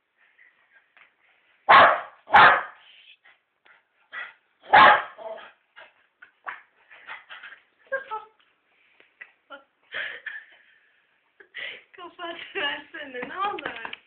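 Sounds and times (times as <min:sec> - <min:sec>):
dog barking: 0:01.7 - 0:02.8, 0:04.6 - 0:05.5
dog yipping: 0:01.7 - 0:02.8, 0:04.7 - 0:05.5.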